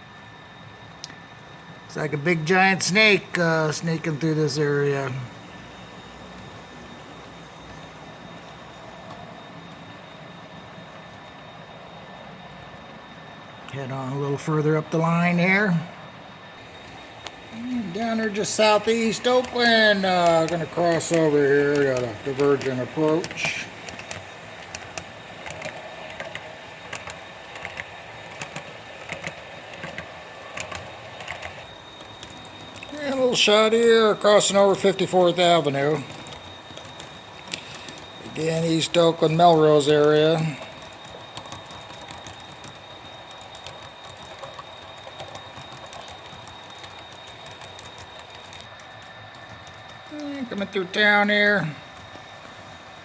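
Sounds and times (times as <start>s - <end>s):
model train running hum: 0.0s - 53.0s
thin high whine: 0.0s - 53.0s
model train wheels clicking: 0.9s - 11.7s, 12.7s - 15.8s, 16.6s - 53.0s.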